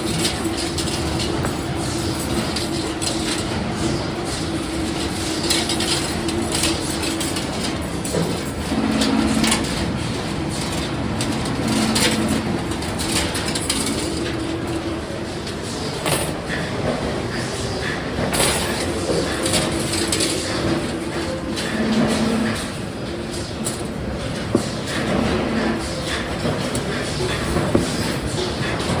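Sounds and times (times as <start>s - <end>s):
mechanism clicks and clatter: 0.0s - 16.6s, 18.3s - 29.0s
machine motor hum: 6.2s - 14.7s.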